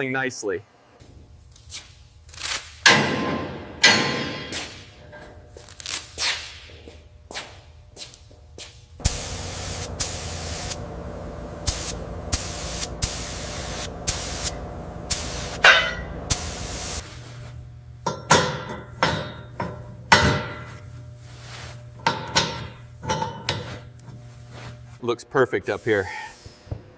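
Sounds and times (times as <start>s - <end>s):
steady hiss: 9.0s - 17.2s.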